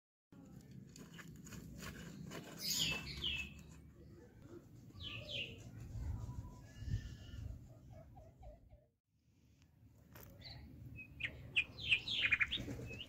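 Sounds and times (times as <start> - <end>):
bird chirping: 2.1 - 4.3, 10.3 - 13.0.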